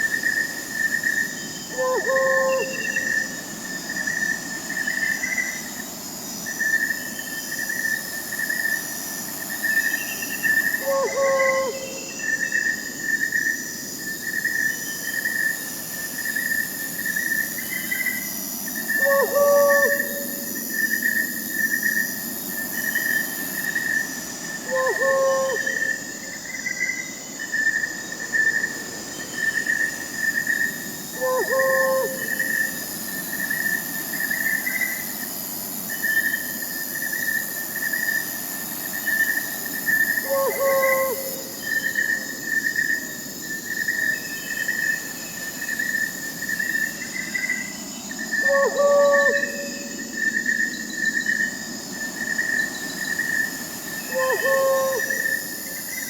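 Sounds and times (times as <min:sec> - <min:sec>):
crickets chirping: 0:00.0 - 0:56.0
high insect buzz: 0:00.0 - 0:56.0
owl hooting: 0:01.7 - 0:03.1, 0:10.8 - 0:12.0, 0:19.0 - 0:20.6, 0:24.7 - 0:26.0, 0:31.2 - 0:32.8, 0:40.2 - 0:41.8, 0:48.4 - 0:50.0, 0:54.1 - 0:55.4.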